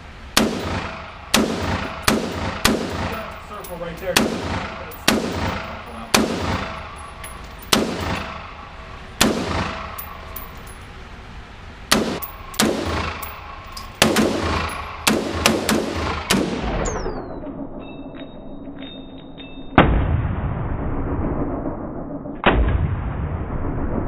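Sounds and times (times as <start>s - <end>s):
gunshots with echo: 0.4s - 10.7s, 11.9s - 17.0s.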